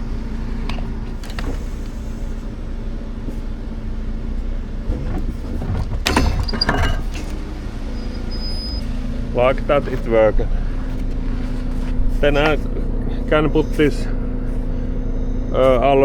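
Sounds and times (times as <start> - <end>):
diesel engine idling: 0.0 - 16.0
metallic clanking and rattling: 0.4 - 8.0.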